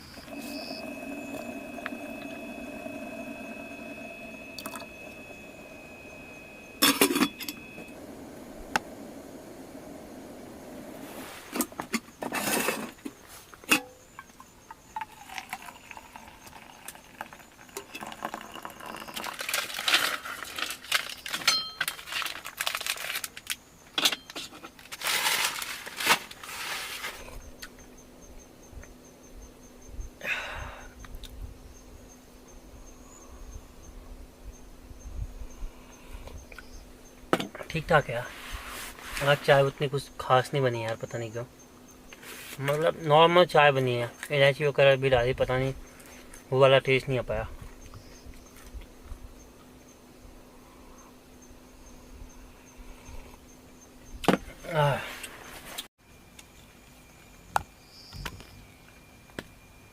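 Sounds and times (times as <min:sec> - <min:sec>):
steady hum: 0:00.0 - 0:21.9.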